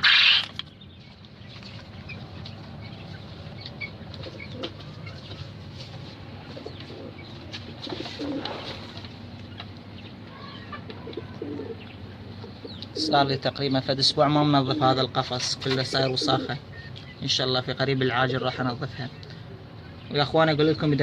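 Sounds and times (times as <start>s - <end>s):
steady low hum: 0.0s - 21.0s
pigeons cooing: 3.2s - 5.7s, 6.3s - 13.5s, 14.2s - 17.0s
faint bird chirps: 16.0s - 17.4s.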